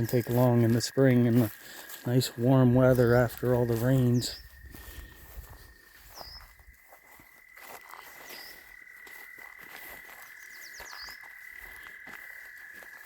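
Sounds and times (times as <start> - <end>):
frogs trilling: 0.0 - 13.0
bird chirps: 2.6 - 9.0, 9.8 - 13.0.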